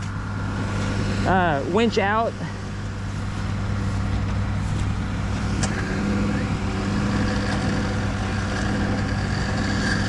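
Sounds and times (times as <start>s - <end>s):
vehicle engine idling: 2.3s - 10.0s.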